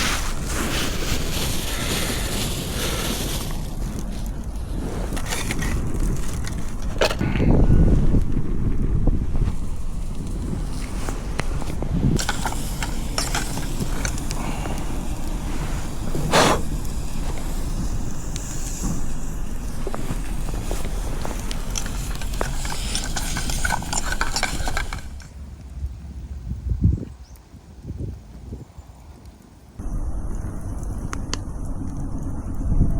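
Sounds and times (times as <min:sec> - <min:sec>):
wind rumble on microphone: 0:00.0 - 0:32.9
camp gear clinking: 0:10.0 - 0:25.3.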